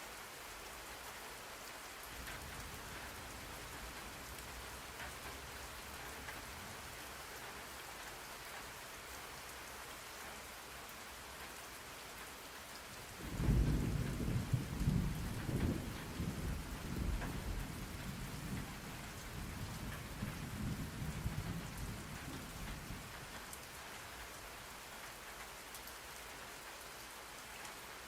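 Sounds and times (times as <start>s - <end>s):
steady rain falling: 0.0s - 28.0s
low rumble of thunder: 13.1s - 23.4s.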